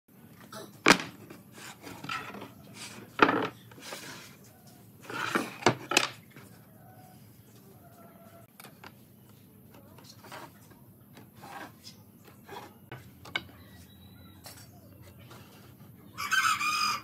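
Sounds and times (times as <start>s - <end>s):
boards scraping on table: 0.9s - 6.2s, 11.2s - 13.1s.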